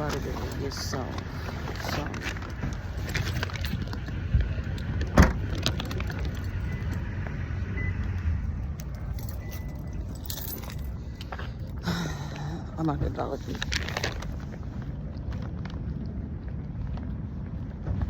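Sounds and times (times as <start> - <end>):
car engine rumble: 0.0 - 18.0
keys jangling: 8.8 - 11.4.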